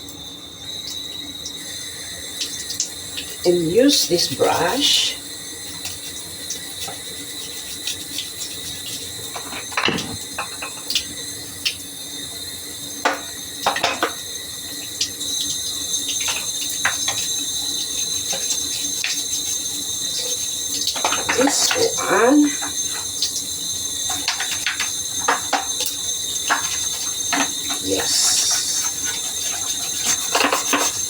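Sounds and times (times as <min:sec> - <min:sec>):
tap water running: 0:00.0 - 0:31.0
brush scrubbing: 0:05.6 - 0:09.3, 0:26.4 - 0:31.0
plastic knocking against sink: 0:09.6 - 0:10.8.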